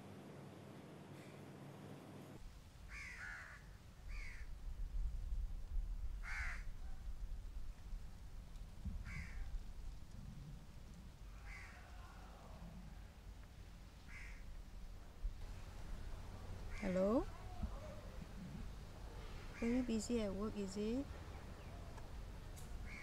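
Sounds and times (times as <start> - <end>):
low outdoor rumble: 0.0 - 23.0
bird calls: 19.1 - 23.0.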